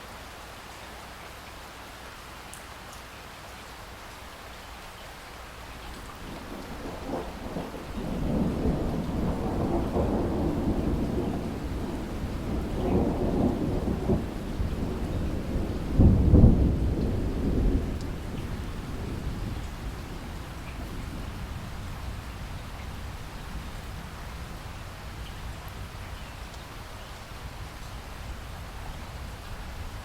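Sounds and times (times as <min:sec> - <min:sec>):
rain falling: 0:00.0 - 0:30.0
thunder rumbling: 0:05.9 - 0:26.8.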